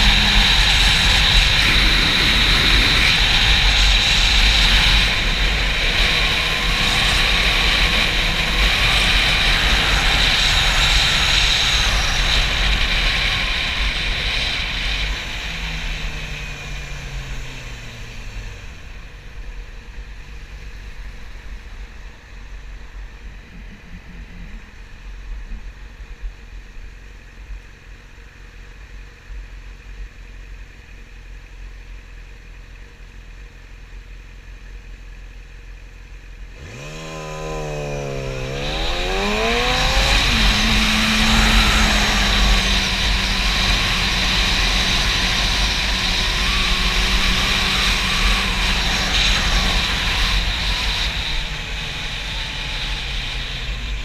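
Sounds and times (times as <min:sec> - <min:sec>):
wind rushing over microphone: 0:00.0 - 0:26.7, 0:36.6 - 0:54.0
motorcycle engine: 0:00.0 - 0:54.0.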